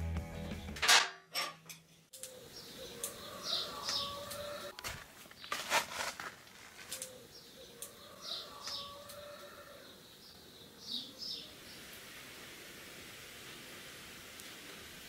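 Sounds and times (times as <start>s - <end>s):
songbird chirps: 2.0s - 5.7s, 6.5s - 12.0s
rustling handling noise: 4.7s - 7.2s.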